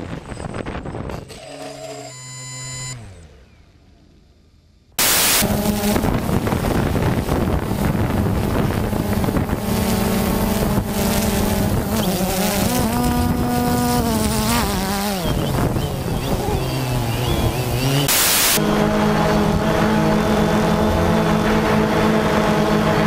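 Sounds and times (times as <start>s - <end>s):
drone propeller whine: 1.2s - 23.0s
loud drone propeller buzz: 5.0s - 23.0s.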